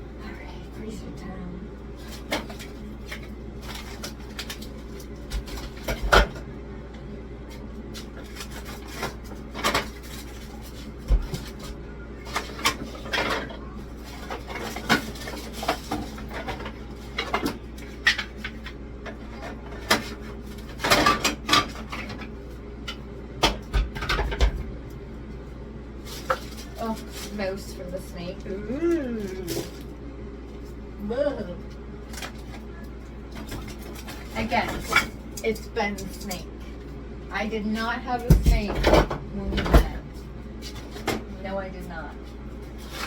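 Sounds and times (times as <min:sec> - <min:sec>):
frozen food packages clattering: 0:02.0 - 0:06.5, 0:08.0 - 0:24.6, 0:26.0 - 0:27.8.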